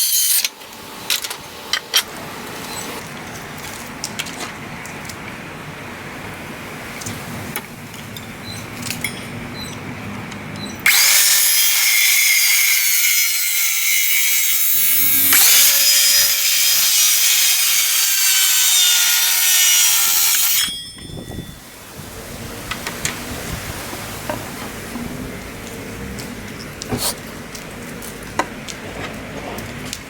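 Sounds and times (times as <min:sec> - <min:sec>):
power tool whining in wood: 0:10.8 - 0:20.7.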